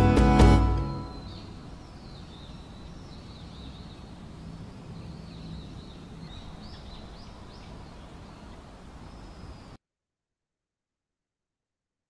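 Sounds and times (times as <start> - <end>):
small birds chirping: 0.8 - 9.8.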